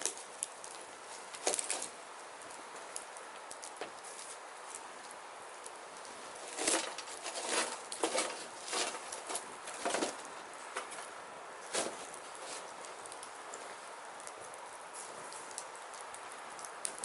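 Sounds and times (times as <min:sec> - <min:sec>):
firewood crackling and popping: 0:00.0 - 0:17.0
sharp cracks: 0:15.3 - 0:17.0.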